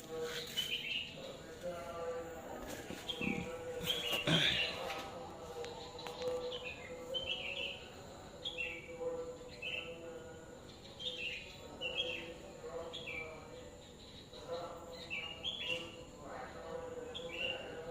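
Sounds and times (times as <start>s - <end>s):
songbirds chirping: 0.0s - 17.9s.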